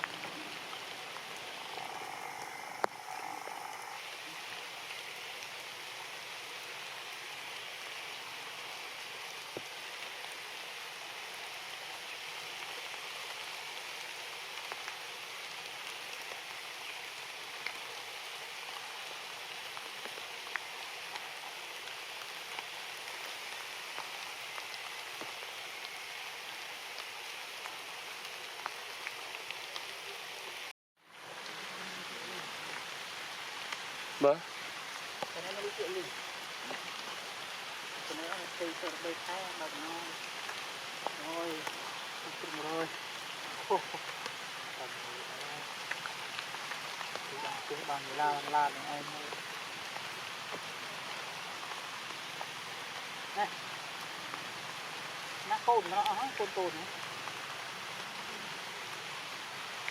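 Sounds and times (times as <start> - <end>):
steady rain: 0.0 - 59.9
faint drip ticks: 1.8 - 3.8.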